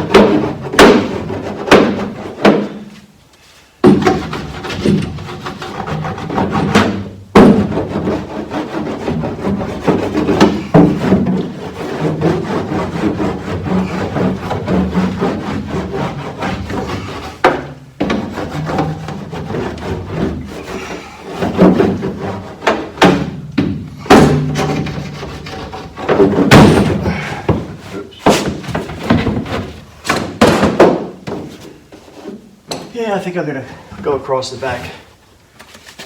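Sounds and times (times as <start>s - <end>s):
knocks against metal panels: 0.0s - 2.9s, 3.8s - 5.2s, 6.3s - 8.1s, 9.1s - 12.2s, 21.4s - 31.5s
sheets rubbing on sheet metal: 0.0s - 3.1s, 3.9s - 32.6s.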